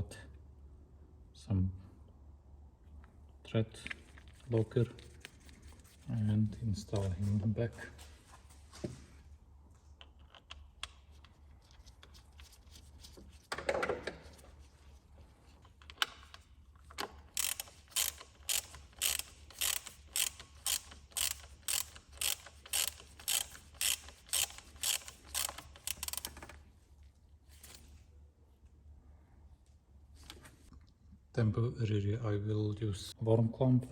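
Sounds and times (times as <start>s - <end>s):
ratchet wrench clicking: 17.0s - 26.5s.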